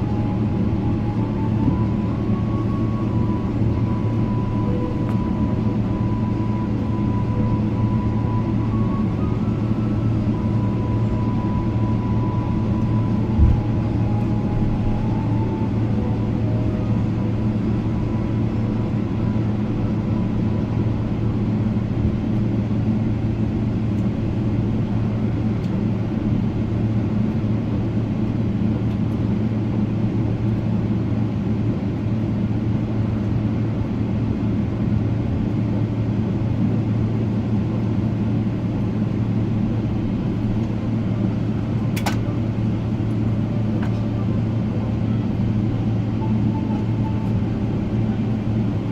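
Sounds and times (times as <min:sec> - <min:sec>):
aircraft cabin drone: 0:00.0 - 0:48.9
brief click: 0:41.9 - 0:42.2.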